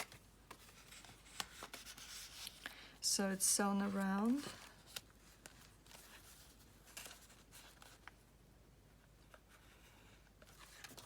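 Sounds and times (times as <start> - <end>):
paper pages rustling: 0.0 - 2.6, 3.9 - 8.2, 10.4 - 11.0.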